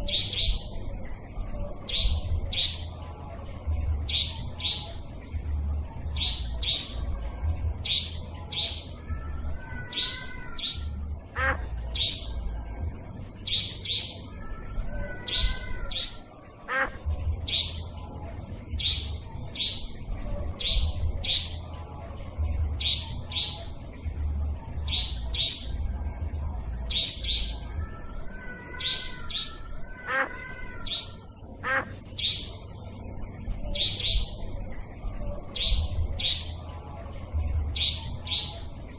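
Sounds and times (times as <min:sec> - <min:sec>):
lower warbling bird call: 0:00.0 - 0:01.1, 0:07.8 - 0:12.6, 0:13.4 - 0:18.0, 0:26.9 - 0:27.8
nightjar calling: 0:00.0 - 0:01.1, 0:01.7 - 0:03.1, 0:04.1 - 0:05.2, 0:06.1 - 0:07.2, 0:07.8 - 0:12.6, 0:13.2 - 0:18.0, 0:18.7 - 0:21.8, 0:22.8 - 0:23.8, 0:24.8 - 0:25.8, 0:26.8 - 0:32.8, 0:33.5 - 0:34.6, 0:35.4 - 0:36.8, 0:37.7 - 0:38.9
low rumble: 0:03.6 - 0:08.3, 0:17.0 - 0:21.3.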